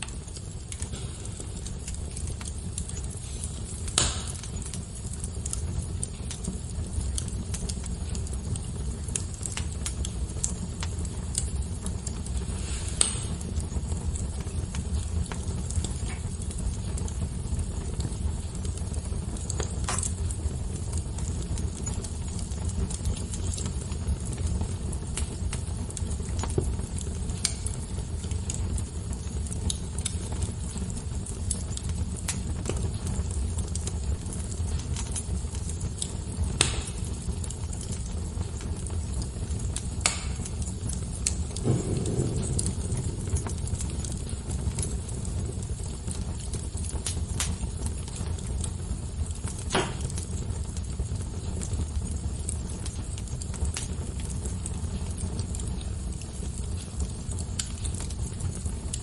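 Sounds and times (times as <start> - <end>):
wood fire crackling and popping: 0.0 - 59.0
steady low rumble: 39.7 - 46.5.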